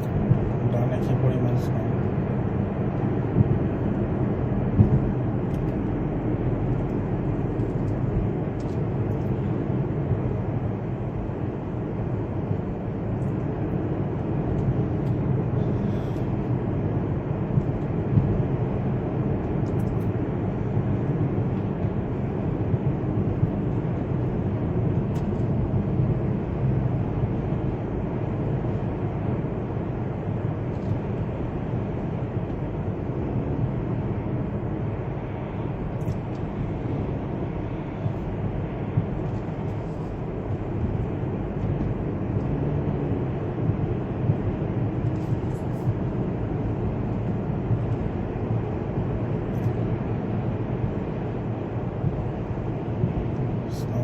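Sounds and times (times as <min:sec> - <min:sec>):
car road and engine noise: 0:00.0 - 0:54.0.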